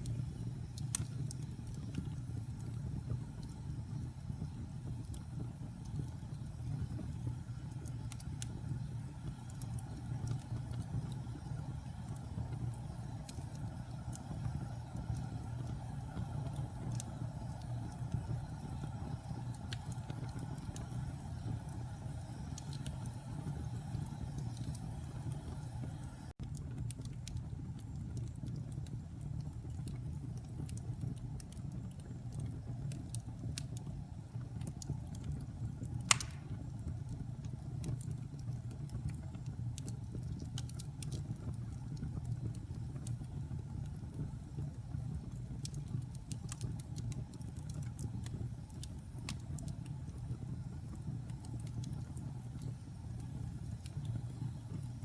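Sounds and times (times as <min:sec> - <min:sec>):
wood fire rumbling and crackling: 0:00.0 - 0:55.0
loud fire pop: 0:36.1 - 0:36.7.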